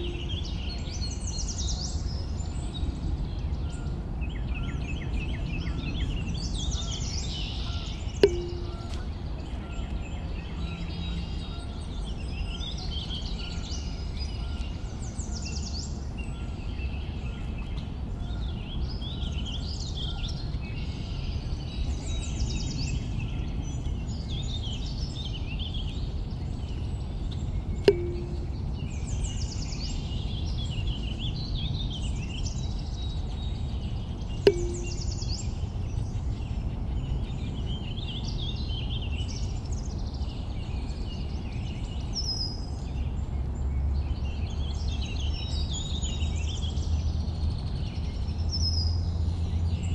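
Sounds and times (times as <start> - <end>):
birds chirping: 0.0 - 1.2, 7.4 - 9.9, 27.9 - 29.1, 34.5 - 35.5
sharp click with low tone: 8.2 - 9.1, 27.9 - 28.6, 34.5 - 35.3.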